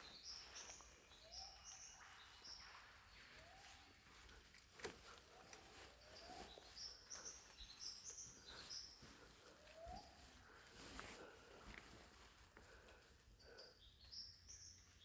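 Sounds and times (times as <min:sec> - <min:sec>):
birds whistling: 0:00.0 - 0:04.2, 0:04.8 - 0:10.6
rising bird calls: 0:05.1 - 0:10.6.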